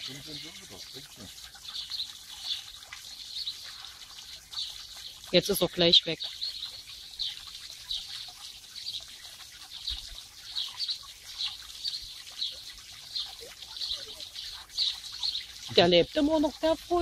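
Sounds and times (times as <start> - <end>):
small bird chirping: 9.8 - 15.9.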